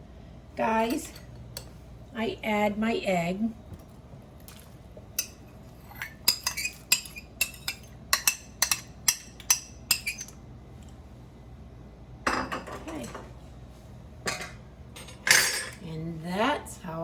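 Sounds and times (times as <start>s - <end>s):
metal utensil clinking on dish: 14.3s - 15.8s.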